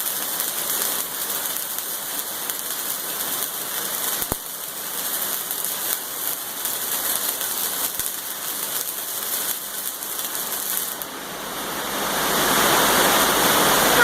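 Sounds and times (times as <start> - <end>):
arc welding crackling hiss: 0.0 - 14.0.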